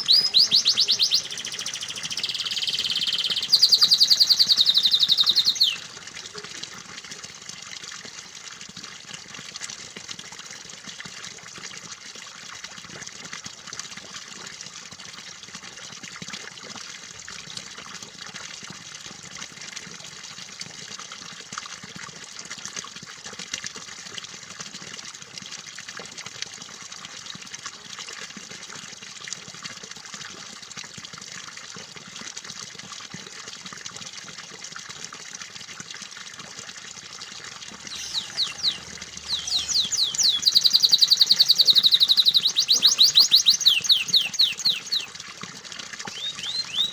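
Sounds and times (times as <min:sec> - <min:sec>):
canary singing: 0:00.0 - 0:05.9, 0:37.8 - 0:45.1, 0:46.1 - 0:46.9
running water trickling: 0:00.0 - 0:46.9.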